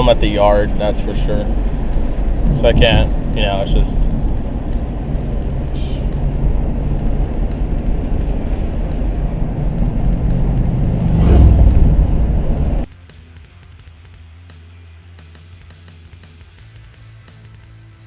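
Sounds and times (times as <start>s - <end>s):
pickup engine rumble while driving: 0.0s - 12.9s
road noise inside cab: 0.0s - 12.9s.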